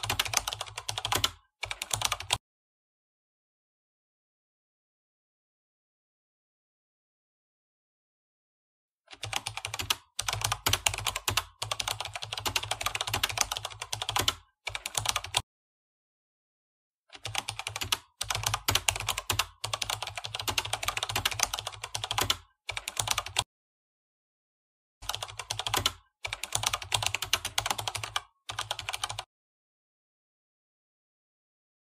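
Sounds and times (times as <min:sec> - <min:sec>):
keyboard typing clicks: 0:25.0 - 0:29.3.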